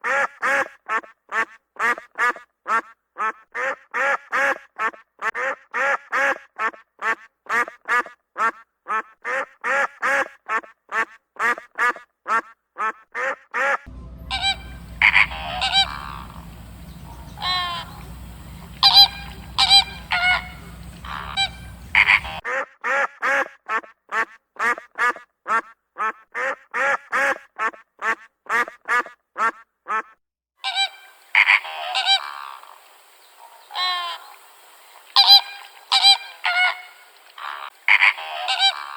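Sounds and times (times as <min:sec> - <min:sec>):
waterfowl honks: 0:00.0 - 0:38.9
steady low hum: 0:13.9 - 0:22.4
waterfowl calling: 0:13.9 - 0:22.4, 0:30.6 - 0:38.9.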